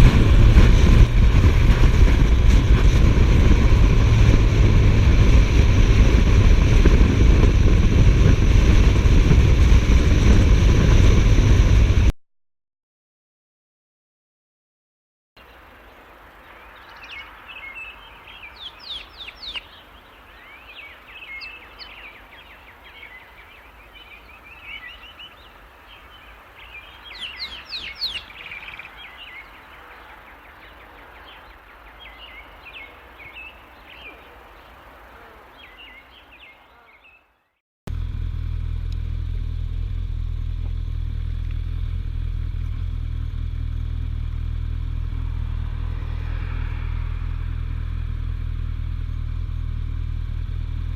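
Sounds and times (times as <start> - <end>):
motorcycle engine droning: 0.0 - 12.1, 37.9 - 50.9
wild birds singing: 15.4 - 37.6.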